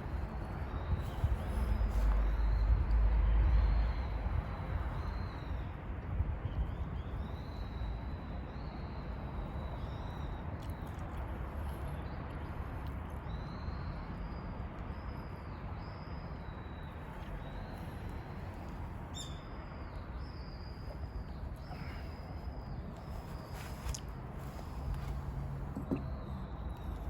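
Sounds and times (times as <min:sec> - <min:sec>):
outdoor background hum: 0:00.0 - 0:27.0.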